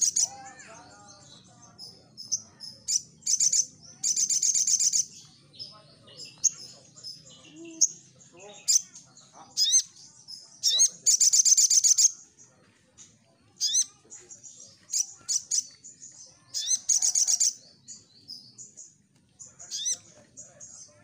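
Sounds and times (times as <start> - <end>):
bird singing high chirps: 0.0 - 21.0.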